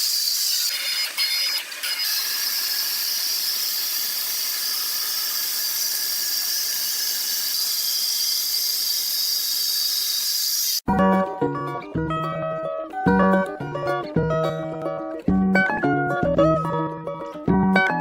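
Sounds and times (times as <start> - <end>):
saw whining: 0.0 - 10.8.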